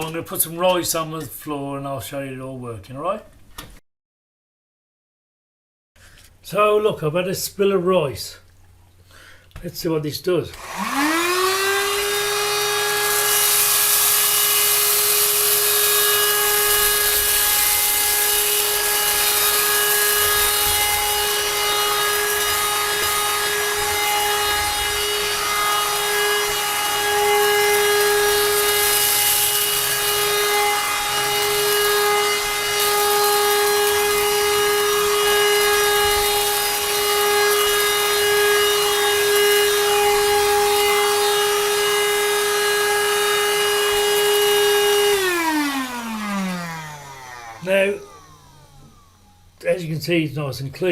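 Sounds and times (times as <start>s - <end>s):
handheld vacuum cleaner running: 10.6s - 49.6s.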